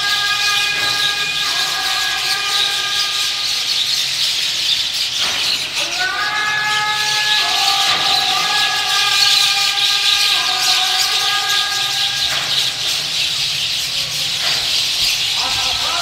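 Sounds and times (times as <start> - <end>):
flock of birds chattering: 0.0 - 16.0.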